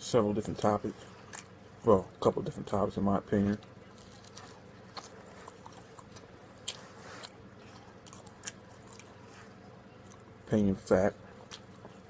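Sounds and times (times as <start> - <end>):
person chewing food: 1.0 - 1.6, 3.5 - 10.4, 11.2 - 12.0
mouth clicks and smacks: 4.0 - 9.2.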